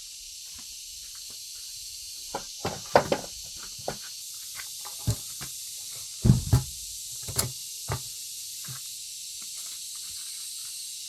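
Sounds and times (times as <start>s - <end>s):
high background hiss: 0.0s - 11.0s
knocks and thumps: 2.4s - 4.0s, 6.2s - 6.8s.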